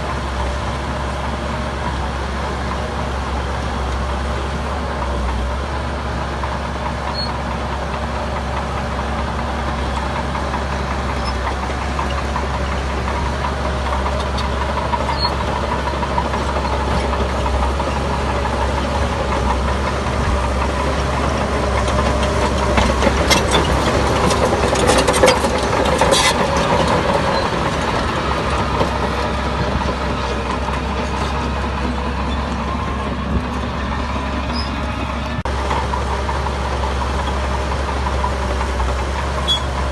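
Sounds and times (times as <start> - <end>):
heavy diesel machinery running: 0.0 - 39.9
clanks and knocks: 19.3 - 32.5.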